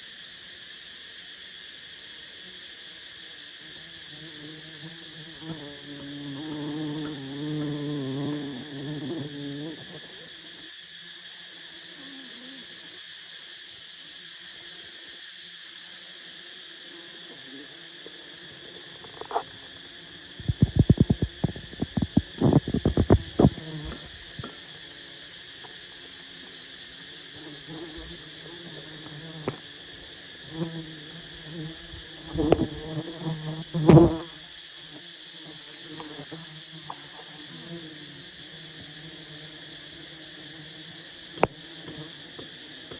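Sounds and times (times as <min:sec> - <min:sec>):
insects chirring: 0:00.0 - 0:42.9
bees buzzing: 0:04.2 - 0:10.4, 0:18.3 - 0:25.1, 0:27.1 - 0:34.4.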